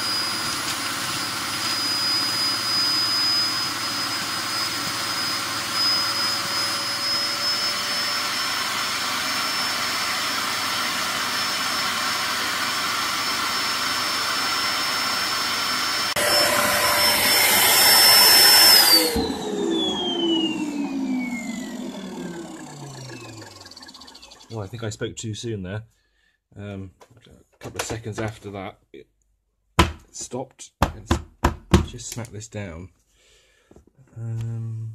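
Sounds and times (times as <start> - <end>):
vacuum cleaner whining: 0.0 - 24.8.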